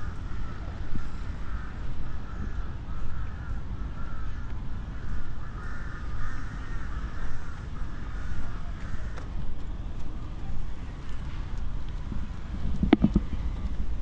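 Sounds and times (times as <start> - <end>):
crows cawing: 0.0 - 9.3
low rumble of wind or traffic: 0.0 - 14.0.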